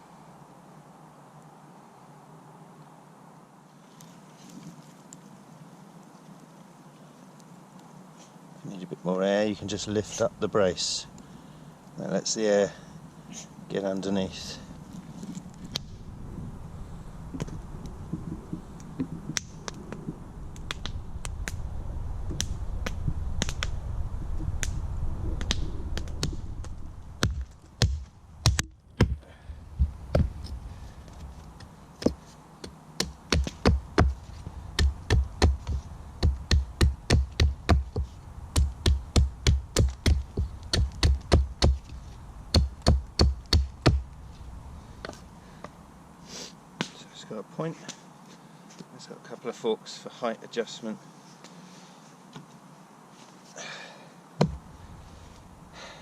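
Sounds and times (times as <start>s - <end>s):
crackles: 12.8s - 32.4s
low rumble: 14.6s - 28.9s.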